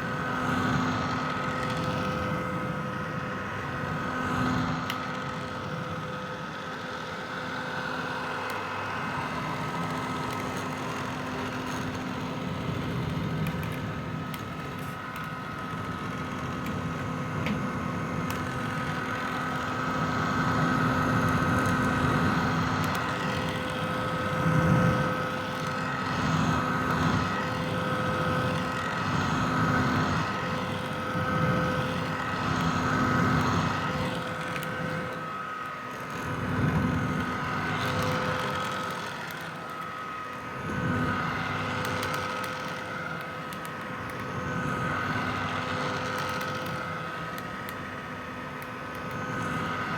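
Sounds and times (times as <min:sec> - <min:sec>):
hair dryer running: 0:00.0 - 0:49.9.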